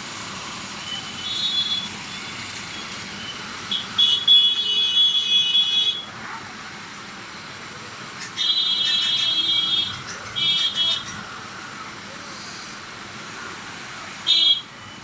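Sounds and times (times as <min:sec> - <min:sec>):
road traffic hiss: 0:00.0 - 0:15.0
vehicle horn blaring: 0:01.1 - 0:02.0, 0:03.7 - 0:06.1, 0:14.2 - 0:14.7.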